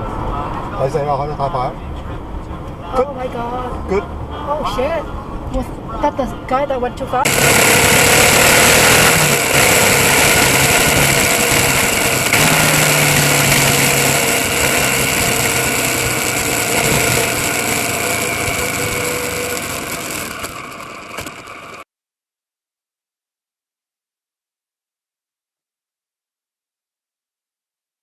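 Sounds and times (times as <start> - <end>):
car engine running: 7.2 - 21.8.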